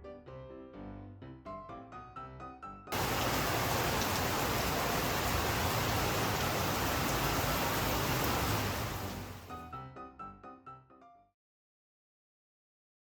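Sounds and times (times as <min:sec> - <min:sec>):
heavy rain pouring: 0:02.9 - 0:09.5.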